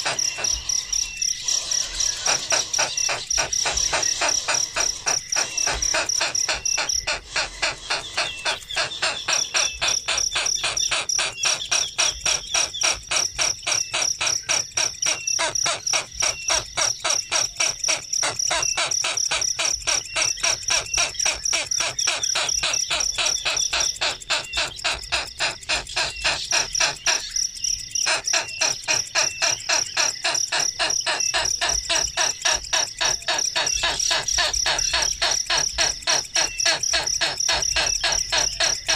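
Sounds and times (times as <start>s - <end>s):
insects high-pitched trill: 0.0s - 38.9s
pulsing insect chirp: 0.0s - 38.9s.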